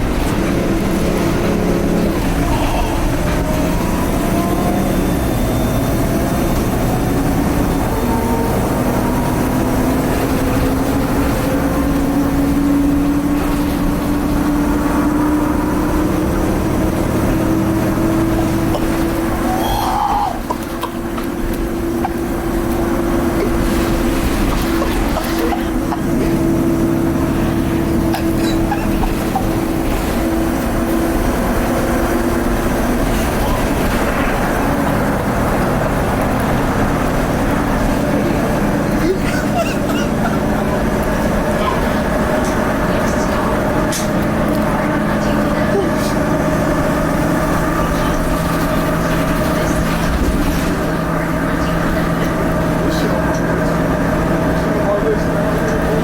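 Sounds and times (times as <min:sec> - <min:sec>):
turbo whine: 0:00.0 - 0:38.8
bus diesel engine under load: 0:00.0 - 0:56.0
road rumble: 0:00.0 - 0:56.0.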